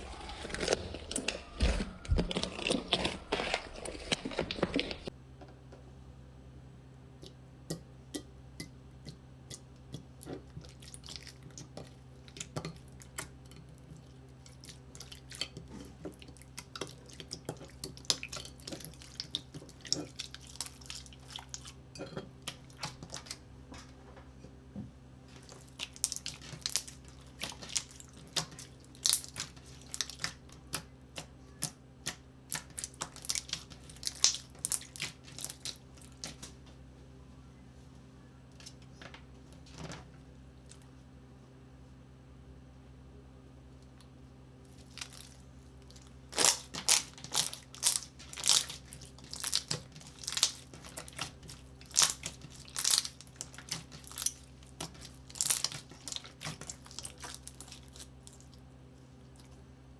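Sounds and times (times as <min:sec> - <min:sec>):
low steady hum: 0:00.0 - 0:59.9
slime squished by hand: 0:09.9 - 0:21.8, 0:25.3 - 0:36.6, 0:44.7 - 0:58.6.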